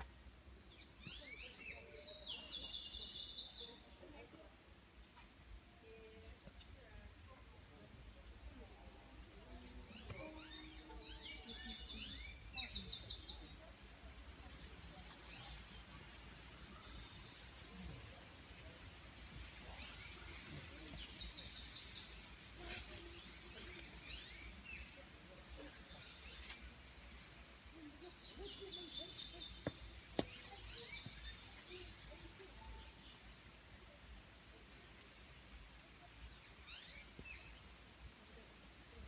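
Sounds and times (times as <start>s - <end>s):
songbirds trilling: 0.1s - 33.6s
faint click: 34.9s - 35.2s.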